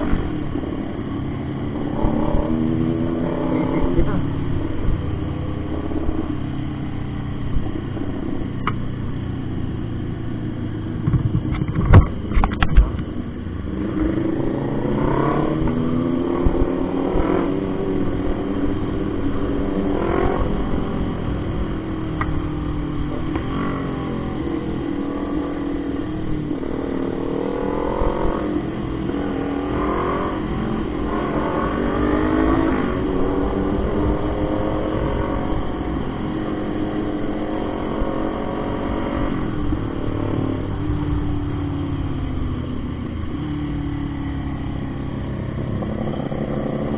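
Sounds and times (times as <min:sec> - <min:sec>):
motorcycle engine accelerating: 0:00.0 - 0:46.9
loud thumps: 0:11.0 - 0:13.1.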